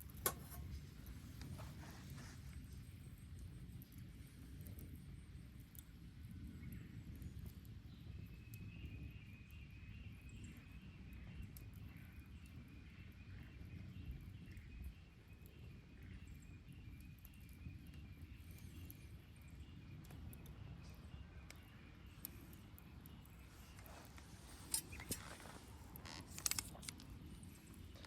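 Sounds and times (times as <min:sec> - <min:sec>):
bonfire crackling and popping: 0:00.0 - 0:12.8, 0:13.6 - 0:28.0
faint chirping: 0:13.3 - 0:28.0.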